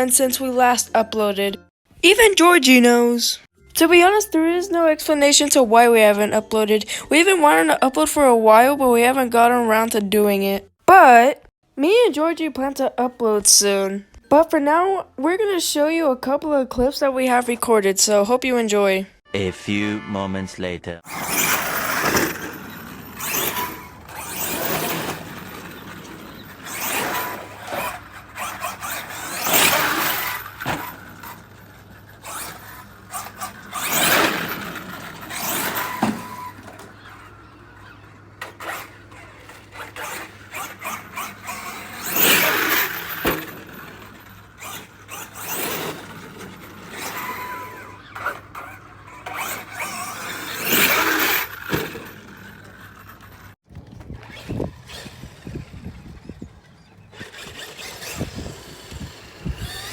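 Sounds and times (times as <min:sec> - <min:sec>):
radio-controlled car motor: 0:21.1 - 0:59.9.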